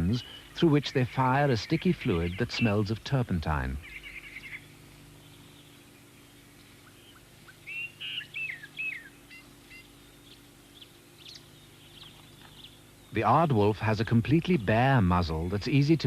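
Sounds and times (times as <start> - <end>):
bird chirping: 0.0 - 15.9
low steady hum: 0.0 - 16.0.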